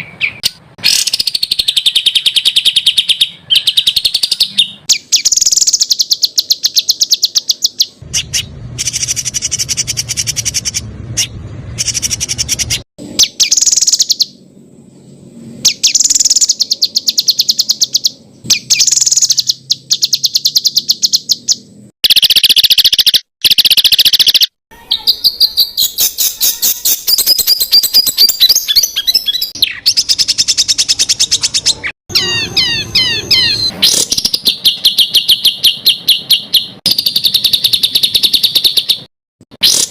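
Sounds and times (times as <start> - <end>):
songbird singing sharp high notes: 15.7 - 39.9.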